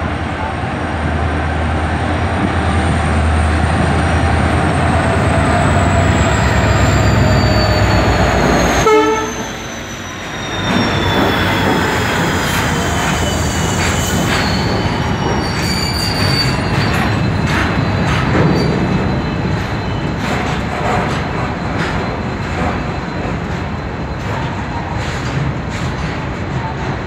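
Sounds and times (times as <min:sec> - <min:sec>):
high wheel squeal: 0:04.0 - 0:24.8.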